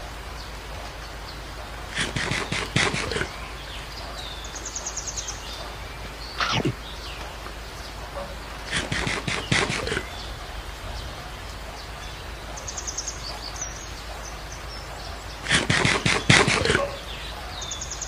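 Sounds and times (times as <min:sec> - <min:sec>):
lion chewing raw meat: 0:01.9 - 0:03.5, 0:08.2 - 0:10.2
high bird trill: 0:01.9 - 0:07.2, 0:07.8 - 0:10.7, 0:14.6 - 0:18.0.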